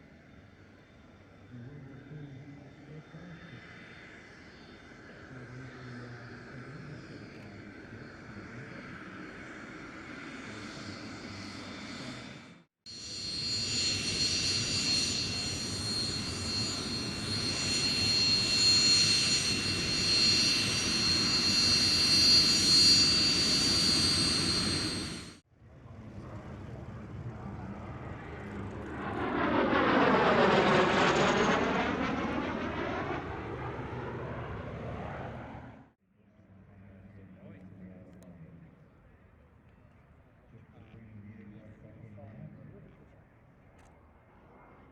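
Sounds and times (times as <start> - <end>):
aircraft engine noise: 0.0 - 35.9
high-pitched engine whine: 0.0 - 39.1.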